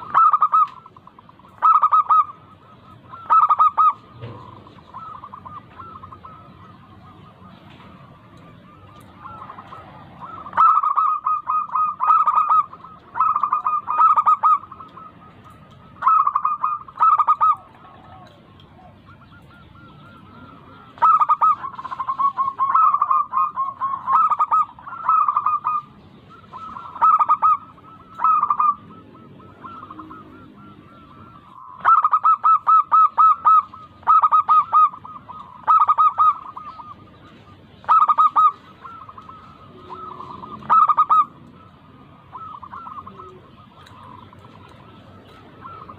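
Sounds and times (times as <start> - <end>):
doves cooing: 0.0 - 45.9.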